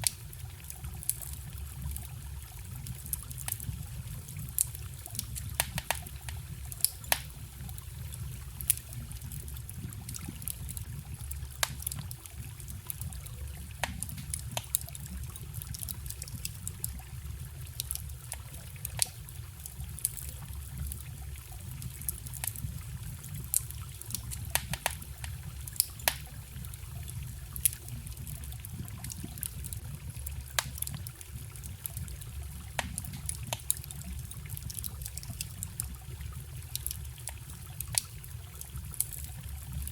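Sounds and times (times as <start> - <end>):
campfire crackling and popping: 0.0 - 39.9
stream trickling: 0.0 - 39.9.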